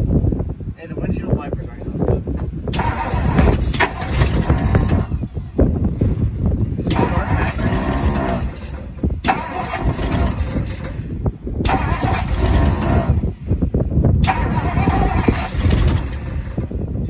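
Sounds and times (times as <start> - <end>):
car engine cranking: 2.7 - 5.5, 6.7 - 13.5, 14.1 - 16.8.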